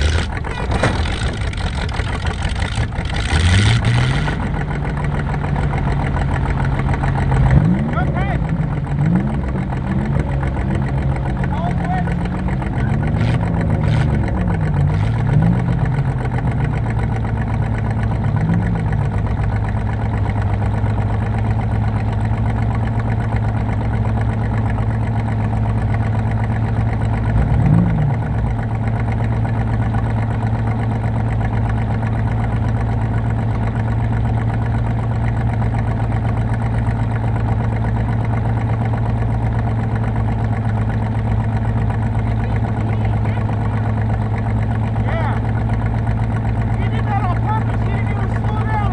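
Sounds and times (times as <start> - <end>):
car engine revving: 0.0 - 21.8, 25.9 - 30.0
car engine idling: 0.0 - 48.9.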